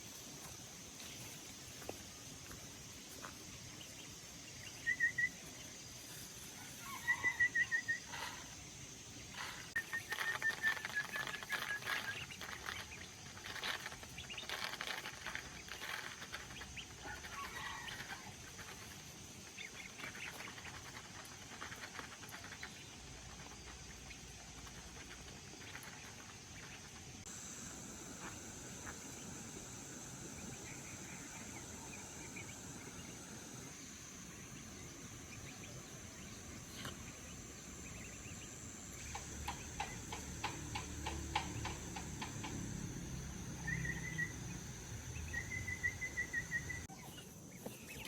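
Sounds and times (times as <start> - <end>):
high insect drone: 0.0 - 48.0
bird calling: 3.9 - 5.6, 6.5 - 18.3, 27.3 - 48.0.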